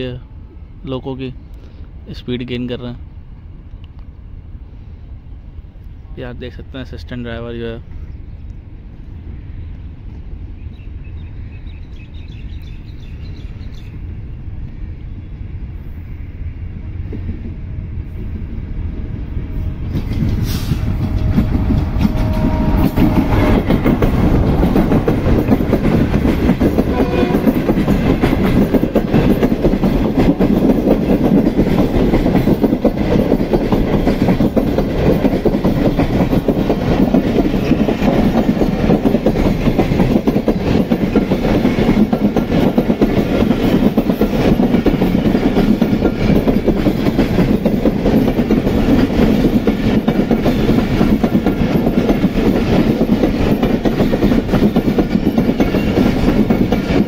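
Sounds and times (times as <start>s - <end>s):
passenger train passing: 0.0s - 57.0s
wheels clattering over rails: 19.8s - 57.0s.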